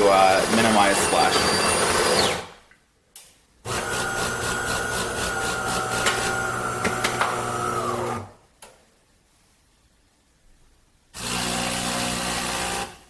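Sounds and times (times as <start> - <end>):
espresso machine motor running: 3.7 - 8.2.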